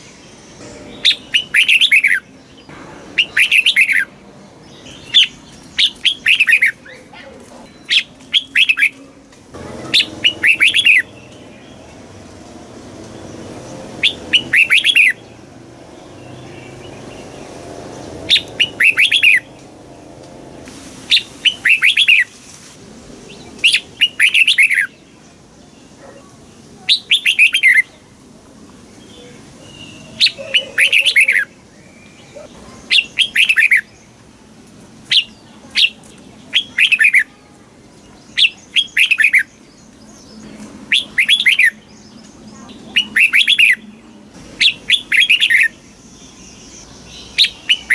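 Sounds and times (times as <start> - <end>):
bird singing whistled phrases: 3.2 - 4.1, 10.0 - 11.1, 14.0 - 15.2, 18.3 - 19.4, 21.1 - 22.3, 23.6 - 24.9, 40.9 - 41.8, 42.9 - 43.8, 47.3 - 47.9.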